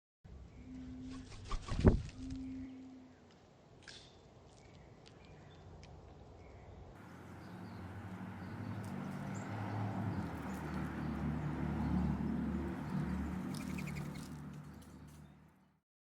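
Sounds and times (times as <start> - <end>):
faint bird chirps: 2.2 - 3.2.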